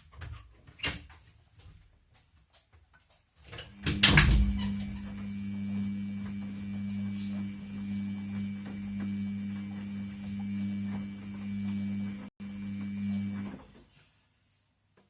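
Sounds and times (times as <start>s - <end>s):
washing machine motor hum: 3.5s - 13.9s
washing machine rush: 3.6s - 13.9s.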